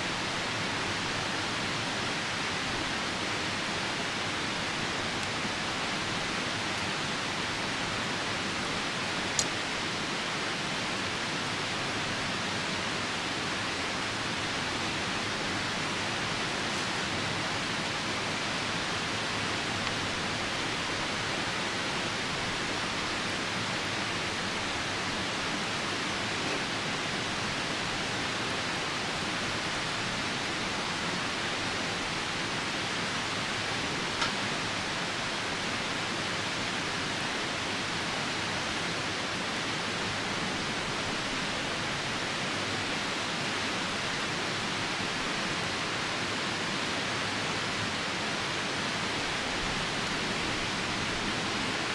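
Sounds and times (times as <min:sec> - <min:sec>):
rain falling: 0:00.0 - 0:51.9
river rushing: 0:00.0 - 0:51.9
campfire crackle: 0:00.1 - 0:10.0, 0:14.3 - 0:38.0.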